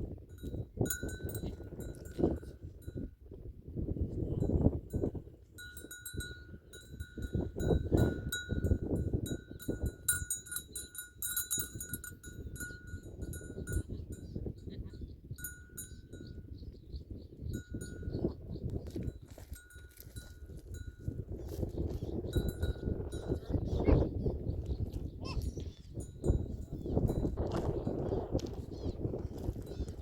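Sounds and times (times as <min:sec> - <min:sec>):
livestock bell clanking: 0:00.3 - 0:03.1, 0:04.5 - 0:16.5, 0:17.5 - 0:18.4, 0:19.1 - 0:24.0, 0:25.8 - 0:28.9.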